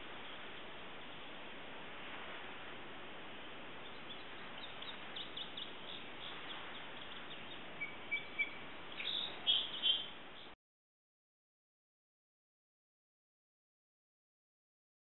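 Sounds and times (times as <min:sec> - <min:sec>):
outdoor background hiss: 0:00.0 - 0:10.6
small birds chirping: 0:03.4 - 0:10.6
whistled bird note: 0:03.9 - 0:10.5.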